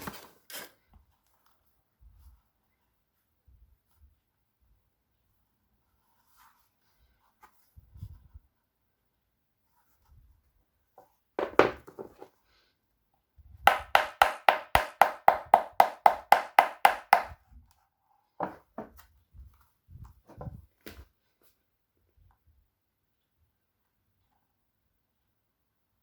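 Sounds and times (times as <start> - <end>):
heeled shoes tapping hard surface: 13.7 - 17.4.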